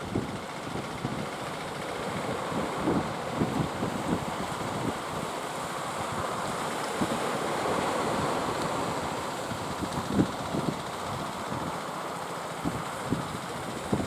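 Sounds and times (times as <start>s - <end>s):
sea surf: 2.4s - 11.0s.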